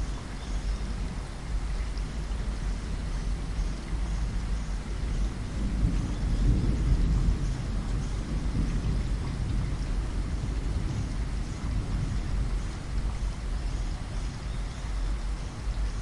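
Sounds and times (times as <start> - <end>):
rain on a window: 0.0 - 16.0
thunder rumbling: 5.0 - 14.5.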